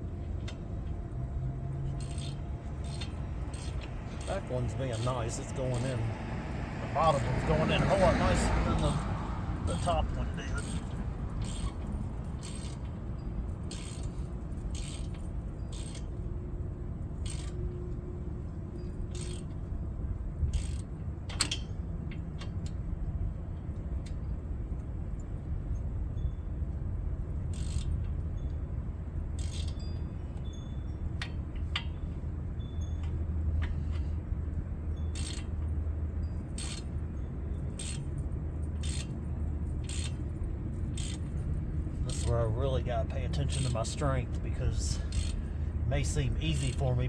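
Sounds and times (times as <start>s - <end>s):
steady low hum: 0.0s - 47.0s
metallic clinks of hand tools: 0.9s - 17.9s, 27.3s - 47.0s.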